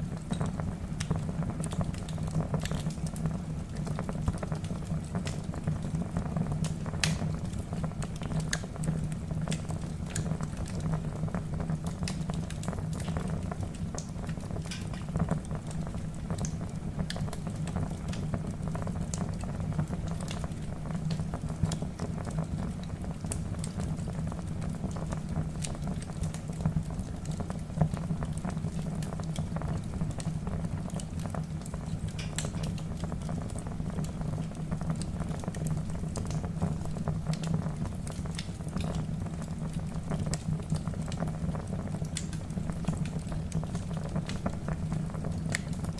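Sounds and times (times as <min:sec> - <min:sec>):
burning logs popping: 0:00.0 - 0:45.9.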